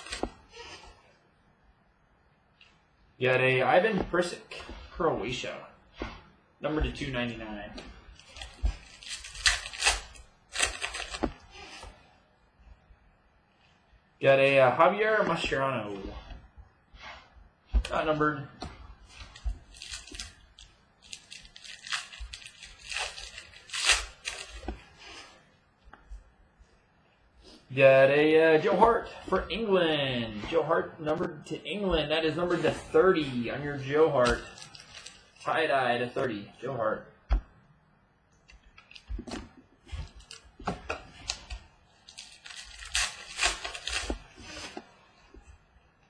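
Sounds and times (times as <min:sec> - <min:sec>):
cards and foil wrappers rustling: 0:08.2 - 0:11.3, 0:19.1 - 0:24.6, 0:34.1 - 0:35.6, 0:40.0 - 0:40.5, 0:41.2 - 0:44.8.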